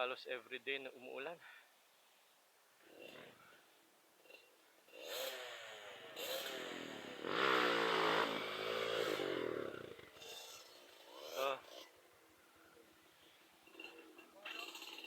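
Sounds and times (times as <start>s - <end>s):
motorcycle engine revving: 4.2s - 12.2s.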